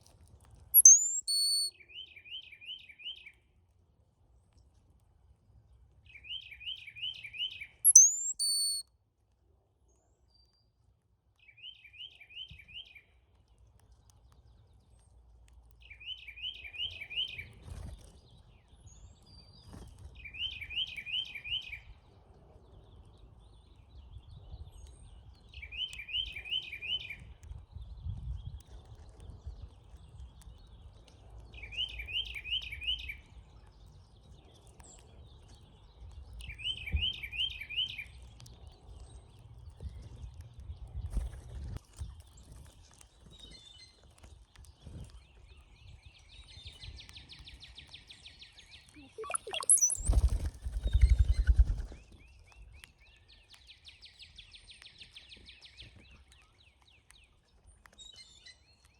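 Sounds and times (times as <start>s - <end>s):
bird song phrase: 0.8s - 1.7s, 7.9s - 8.8s, 48.8s - 50.1s
high rising bird whistle: 0.8s - 1.7s, 7.9s - 8.8s, 49.2s - 50.2s.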